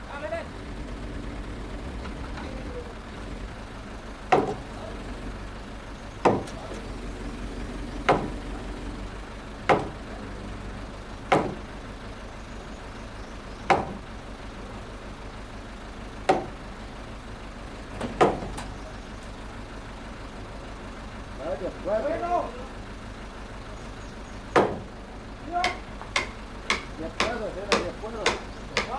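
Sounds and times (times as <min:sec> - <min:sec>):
low engine hum: 0:00.0 - 0:28.9
hammer blows on timber: 0:25.6 - 0:28.9.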